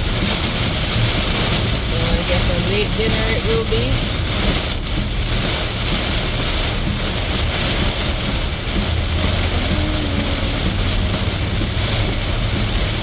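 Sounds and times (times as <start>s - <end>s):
car tyres on wet road: 0.0s - 13.0s
heavy rain: 0.0s - 13.0s.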